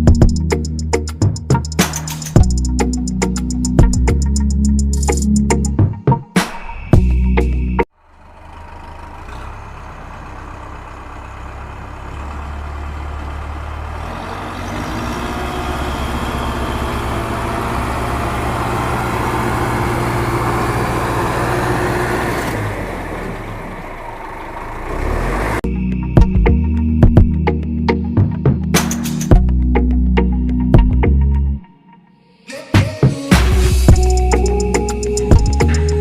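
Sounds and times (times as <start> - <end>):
engine running: 7.9 - 27.4, 33.3 - 36.0.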